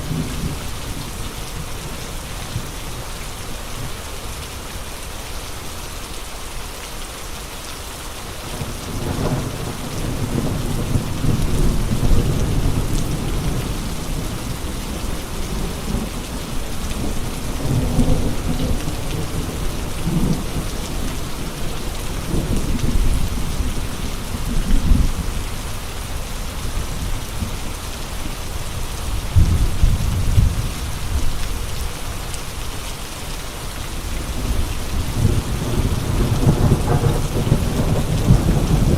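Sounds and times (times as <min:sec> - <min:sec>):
heavy rain hissing: 0:00.0 - 0:38.9
rumbling wind gusts: 0:33.9 - 0:38.9.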